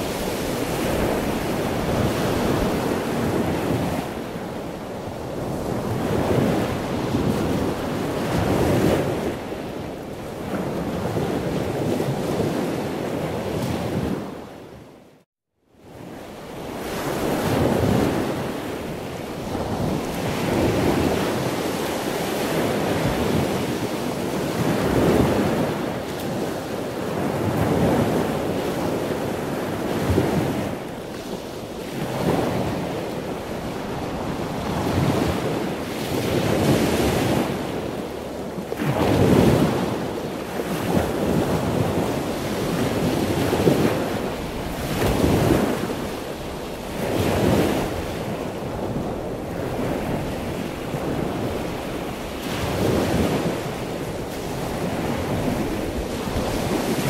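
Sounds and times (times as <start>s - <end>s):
ocean waves washing in: 0.0s - 14.5s.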